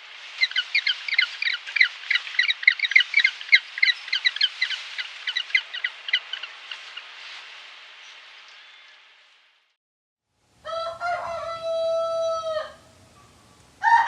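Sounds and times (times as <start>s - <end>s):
high chirping animal calls: 0.4s - 7.0s.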